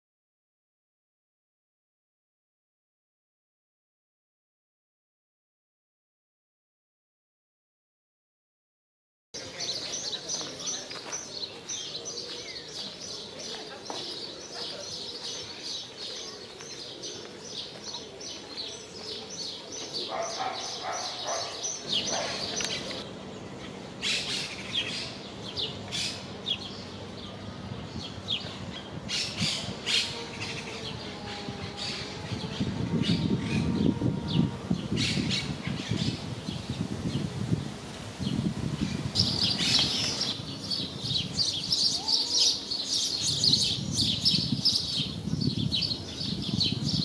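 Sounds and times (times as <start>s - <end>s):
small birds chirping: 9.4s - 23.0s, 39.1s - 47.0s
low background noise: 9.4s - 47.0s.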